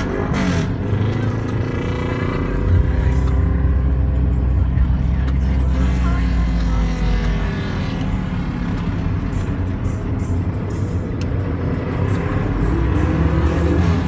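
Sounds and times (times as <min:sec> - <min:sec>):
motorcycle engine revving: 0:00.0 - 0:04.2, 0:11.4 - 0:14.0.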